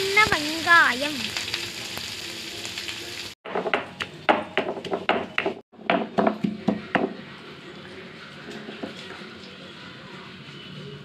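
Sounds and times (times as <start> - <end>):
shallots sizzling in oil: 0.0 - 3.4.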